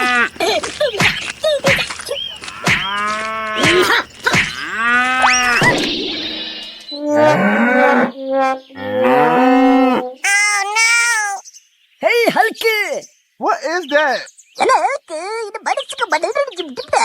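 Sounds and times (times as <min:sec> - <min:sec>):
cattle mooing: 0:02.5 - 0:03.7, 0:04.5 - 0:05.6.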